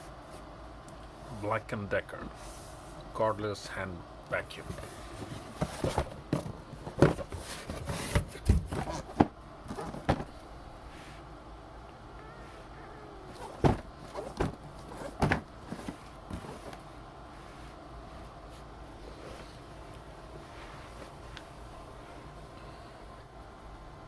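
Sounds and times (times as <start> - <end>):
handling noises: 4.4 - 11.3, 12.4 - 22.3.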